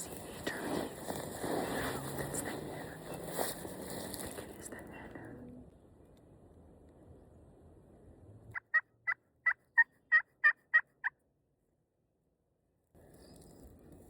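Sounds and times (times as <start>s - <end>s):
turkey yelping: 8.6s - 11.1s.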